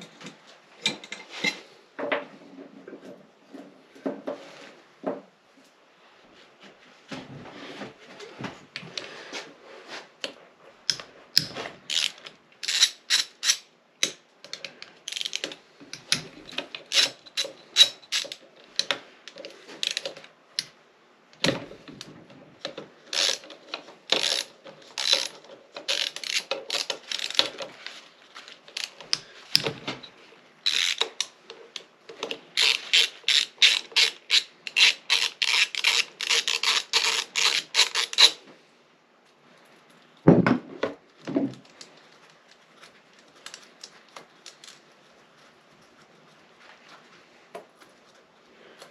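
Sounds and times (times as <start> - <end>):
ratchet wrench clicking: 10.9 - 13.6, 24.2 - 25.3, 30.7 - 31.3, 32.6 - 38.4.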